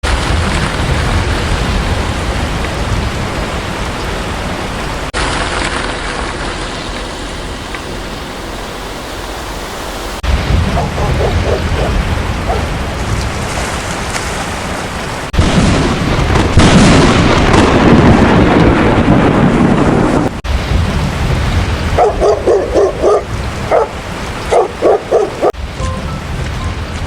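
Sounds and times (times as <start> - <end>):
low thunder rumble: 0.0 - 5.1, 10.2 - 14.0, 15.3 - 27.0
heavy rain: 0.0 - 27.0
dog barking: 10.7 - 12.8, 22.0 - 25.6.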